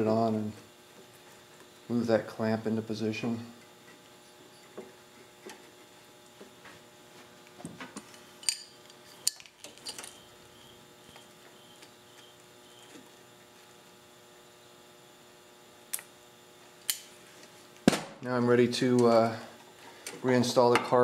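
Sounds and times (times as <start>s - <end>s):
steady electrical hum: 0.0s - 21.0s
metallic clicks and clinks: 8.4s - 10.2s.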